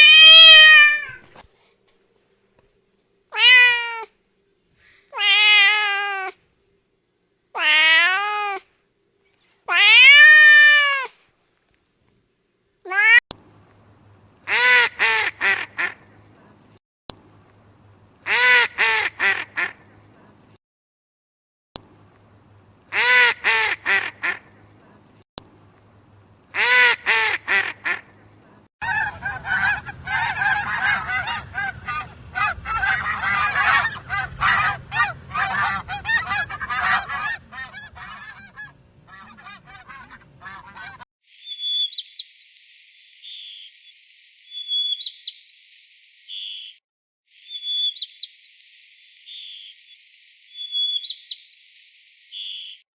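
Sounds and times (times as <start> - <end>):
geese honking: 14.5 - 16.1, 18.2 - 20.3, 22.9 - 24.6, 26.5 - 28.2, 28.8 - 41.0
high chirping bird call: 41.4 - 43.9, 44.5 - 46.8, 47.4 - 50.0, 50.6 - 52.8.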